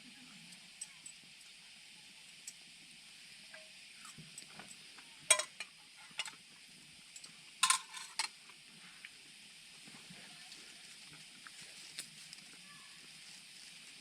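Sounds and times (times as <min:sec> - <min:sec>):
faint hiss: 0:00.0 - 0:14.0
utensils clinking on cookware: 0:05.3 - 0:06.4, 0:07.6 - 0:08.4.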